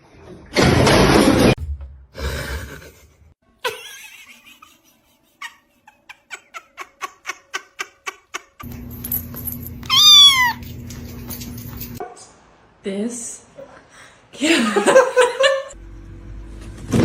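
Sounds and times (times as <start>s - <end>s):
loud falling pet call: 9.9s - 10.6s.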